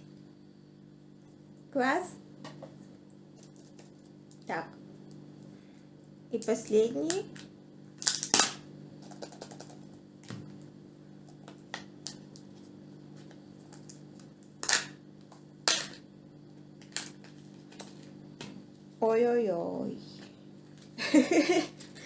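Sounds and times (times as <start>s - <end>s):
steady low hum: 0.0s - 22.0s
sharp plastic cracks: 7.1s - 10.4s.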